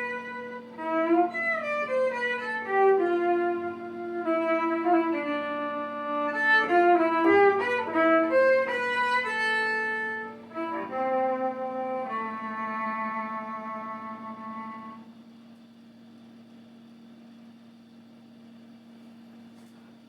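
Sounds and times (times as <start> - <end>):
fiddle playing slow melody: 0.0 - 15.0.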